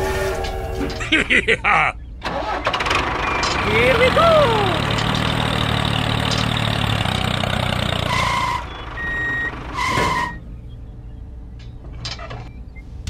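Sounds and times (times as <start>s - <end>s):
tractor engine running: 0.1s - 13.0s
electronic reversing beeps: 8.0s - 13.0s.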